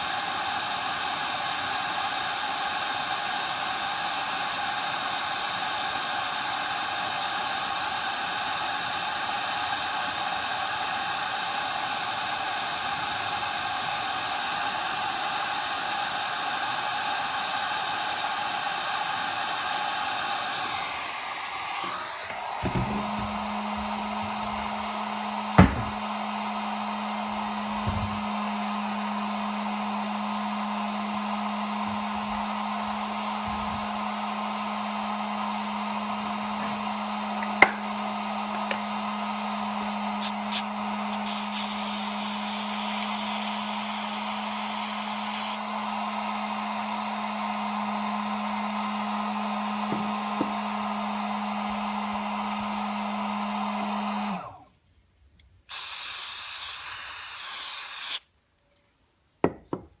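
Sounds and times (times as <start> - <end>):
hot-air blower running: 0.0 - 54.7, 55.7 - 58.2
high hissing air burst: 40.2 - 45.6, 55.7 - 58.3.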